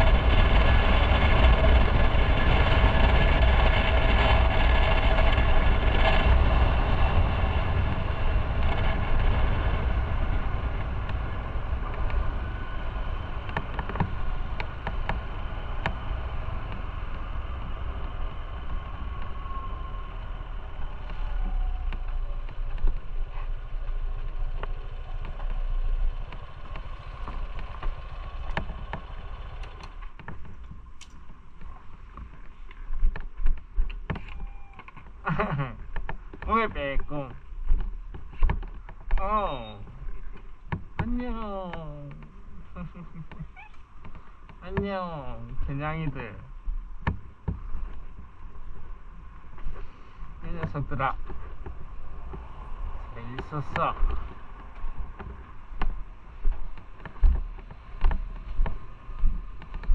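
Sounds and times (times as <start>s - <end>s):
motorcycle engine slowing: 0.0s - 59.9s
sharp clicks: 24.6s - 35.1s.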